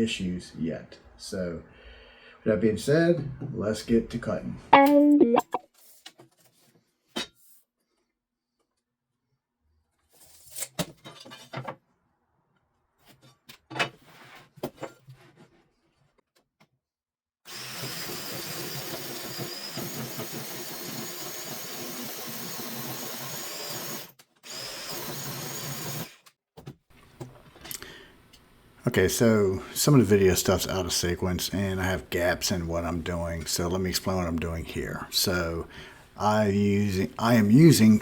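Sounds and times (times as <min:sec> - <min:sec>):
power saw cutting wood: 0:17.5 - 0:26.2.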